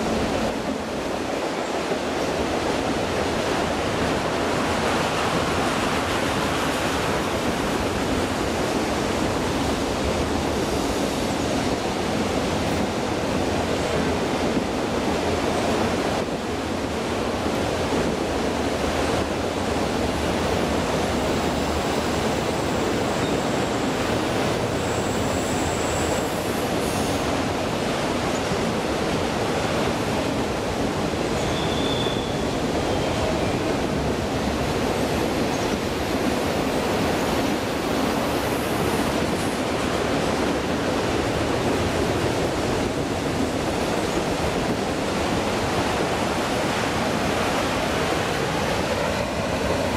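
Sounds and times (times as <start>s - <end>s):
high wheel squeals: 31.4s - 33.8s.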